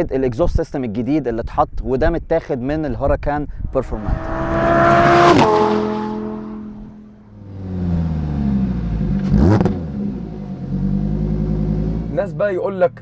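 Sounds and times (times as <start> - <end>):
exhaust crack: 3.7 - 13.0
sports car engine revving: 3.8 - 12.6.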